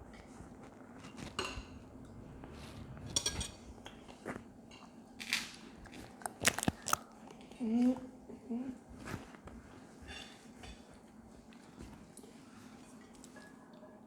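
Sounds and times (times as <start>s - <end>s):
eating sounds: 5.8s - 7.6s.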